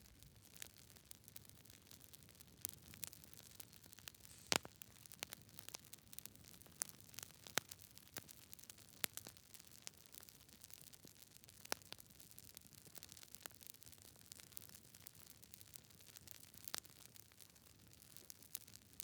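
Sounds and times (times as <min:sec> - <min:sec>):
faint steady hiss: 0:04.1 - 0:04.9
campfire pops and snaps: 0:04.2 - 0:04.8.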